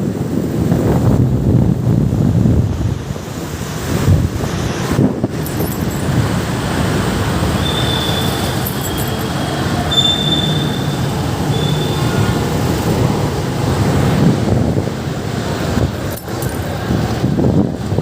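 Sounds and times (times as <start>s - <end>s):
wind on microphone: 0.0s - 9.0s, 12.7s - 18.0s
traffic noise: 0.0s - 18.0s.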